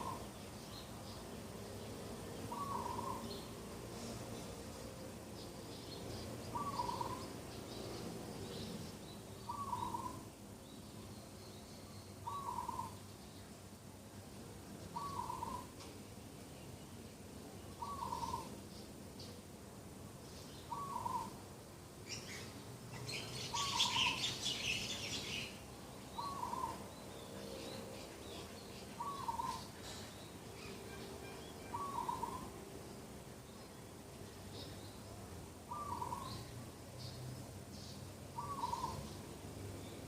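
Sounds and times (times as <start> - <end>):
bird hooting call: 0.0 - 0.2, 2.5 - 3.3, 6.5 - 7.2, 9.5 - 10.2, 12.2 - 13.0, 15.0 - 15.7, 17.8 - 18.5, 20.7 - 21.4, 26.2 - 26.8, 29.0 - 30.0, 30.6 - 32.6, 35.7 - 36.4, 38.4 - 39.0
small birds chirping: 0.0 - 13.7, 14.7 - 19.5, 20.2 - 21.4, 22.0 - 40.0.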